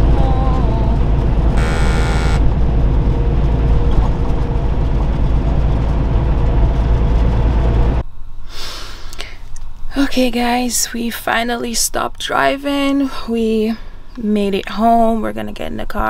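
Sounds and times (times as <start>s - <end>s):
truck engine and road rumble: 0.0s - 8.0s.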